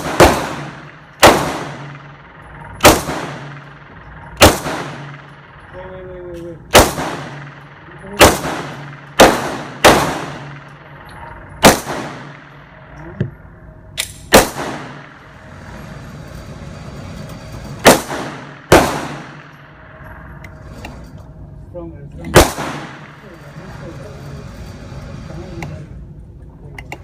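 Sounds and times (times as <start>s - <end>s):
faint gunshots: 0.0s - 2.2s, 2.8s - 3.8s, 4.4s - 5.3s, 6.7s - 10.9s, 11.6s - 12.7s, 14.1s - 15.2s, 17.8s - 19.6s, 22.3s - 23.2s
gunshots with echo: 0.0s - 12.9s, 14.2s - 15.4s, 17.8s - 20.0s, 22.3s - 23.3s.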